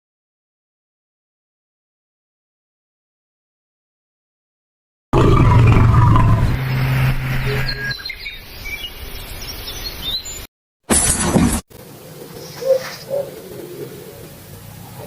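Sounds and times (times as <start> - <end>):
loud low steady hum: 5.2 - 8.0
birds chirping: 5.2 - 10.5, 11.9 - 15.0.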